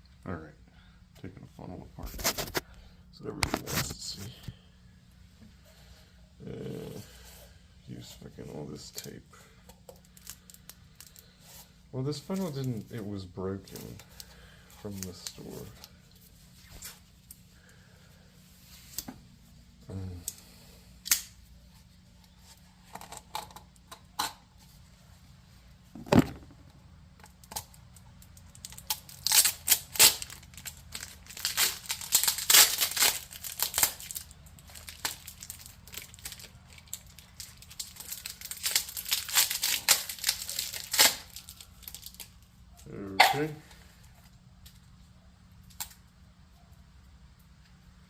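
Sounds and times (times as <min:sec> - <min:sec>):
plastic funnel clicks and knocks: 0:26.0 - 0:26.6
adhesive tape ripping: 0:28.5 - 0:42.3.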